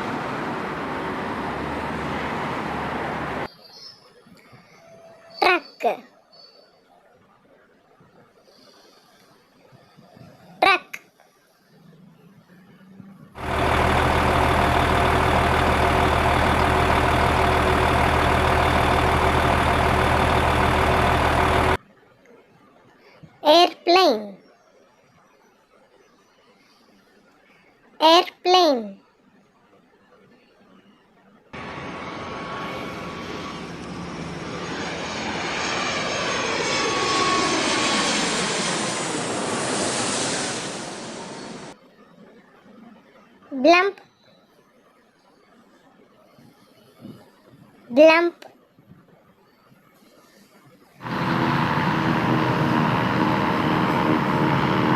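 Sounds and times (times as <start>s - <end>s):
airplane flying past: 0.0s - 3.5s, 13.4s - 21.8s, 31.6s - 41.8s, 51.0s - 54.9s
truck engine running: 0.0s - 3.5s, 13.4s - 21.8s, 31.6s - 41.8s, 51.0s - 54.9s.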